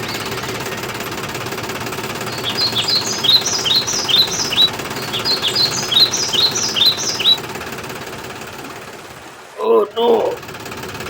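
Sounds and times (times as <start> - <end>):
bird chirping: 0.0 - 1.2, 2.1 - 7.6
small motor humming: 0.0 - 9.5.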